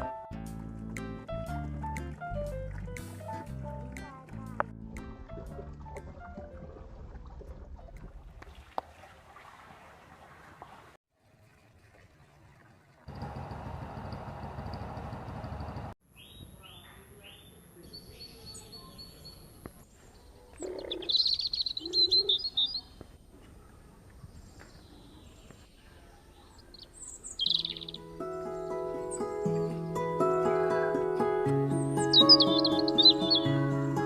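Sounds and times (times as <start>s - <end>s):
running water: 5.4s - 13.6s
small birds chirping: 15.7s - 29.8s, 31.8s - 34.0s.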